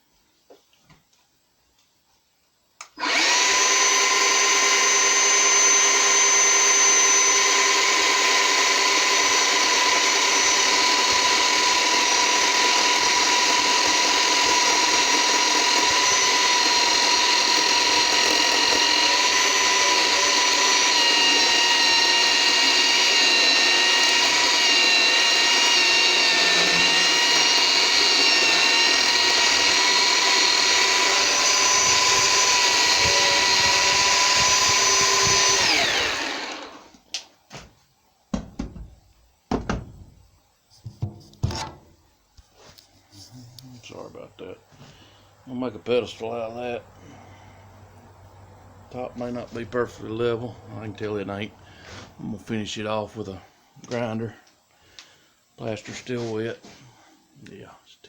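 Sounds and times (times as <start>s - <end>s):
chainsaw cutting plaster: 3.0s - 36.9s.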